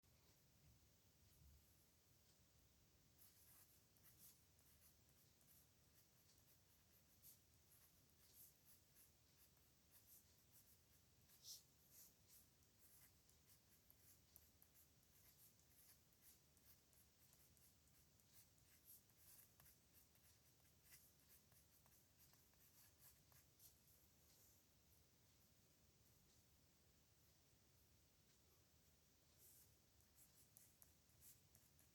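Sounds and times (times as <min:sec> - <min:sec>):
pen scratching on paper: 0:03.2 - 0:24.4, 0:29.4 - 0:31.9.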